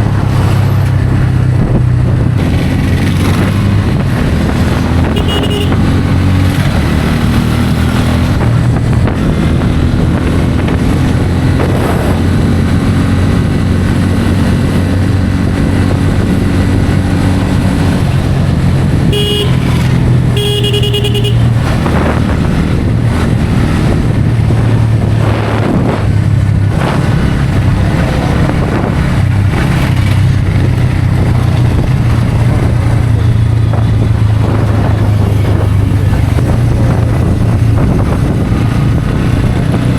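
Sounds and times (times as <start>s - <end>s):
motorcycle engine cruising: 0.0s - 39.9s
wind and road noise: 0.0s - 39.9s
vehicle horn honking: 5.0s - 5.9s, 19.1s - 21.6s.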